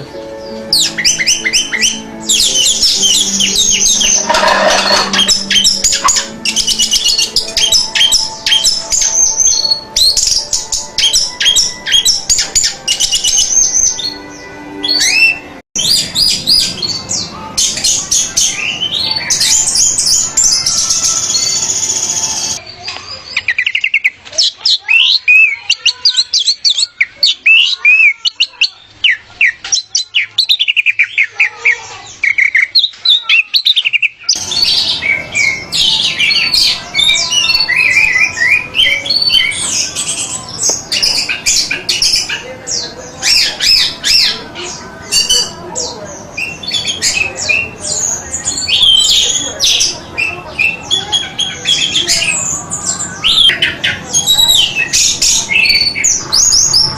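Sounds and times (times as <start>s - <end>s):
thrush singing: 0.0s - 22.6s, 24.8s - 56.9s.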